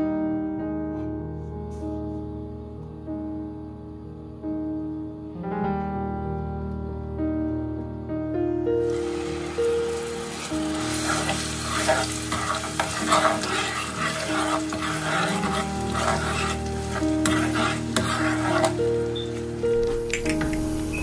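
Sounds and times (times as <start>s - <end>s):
background music: 0.0s - 21.0s
paste sizzling in hot oil: 8.9s - 19.7s
spoon scraping metal pot: 10.4s - 19.3s.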